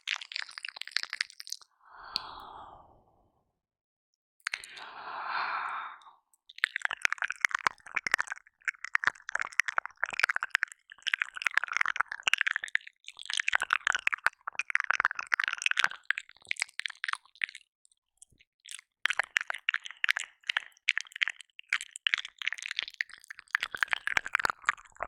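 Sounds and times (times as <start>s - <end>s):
wet mouth clicking and smacking: 0.0s - 2.5s, 4.4s - 4.9s, 6.4s - 25.0s
breathy exhale: 1.8s - 3.4s, 4.5s - 6.1s.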